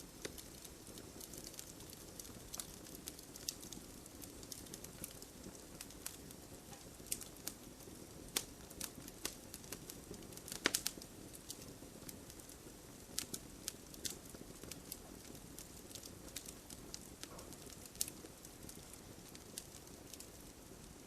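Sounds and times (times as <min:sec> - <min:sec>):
burning wood popping: 0:00.0 - 0:21.0
low rush of flame: 0:00.0 - 0:21.0.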